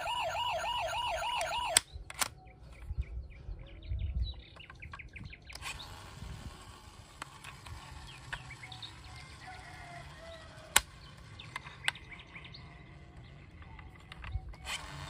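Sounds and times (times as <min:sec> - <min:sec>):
sharp clicks: 0:01.1 - 0:02.4.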